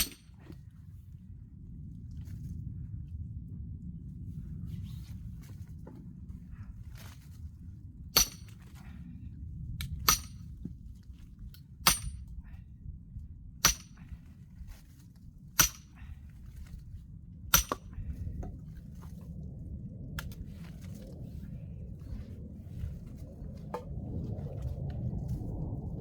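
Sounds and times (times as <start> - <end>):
axe striking log: 0.0 - 0.3, 8.2 - 8.6, 10.0 - 10.4, 11.9 - 12.3, 13.6 - 14.1, 15.6 - 16.0, 17.5 - 18.0.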